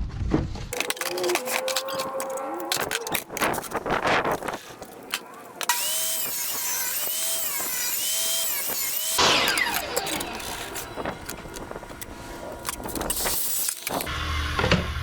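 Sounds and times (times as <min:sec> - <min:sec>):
electric drill running: 0:05.6 - 0:14.1.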